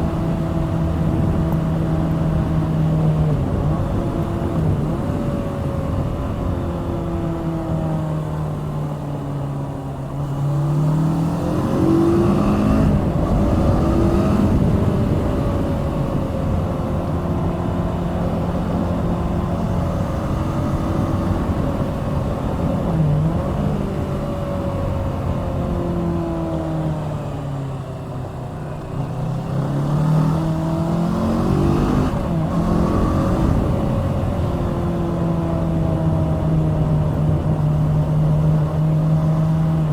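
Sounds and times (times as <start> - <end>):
motorcycle engine: 9.9 - 39.9.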